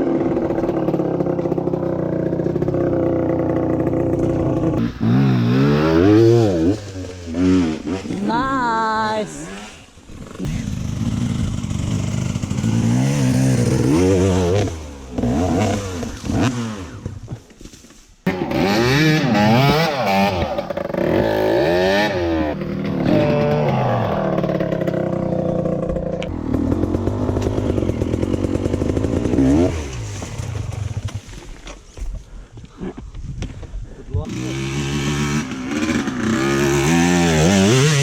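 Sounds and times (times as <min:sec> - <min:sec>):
dirt bike engines revving: 0:00.0 - 0:17.3, 0:18.3 - 0:31.2, 0:34.2 - 0:38.0.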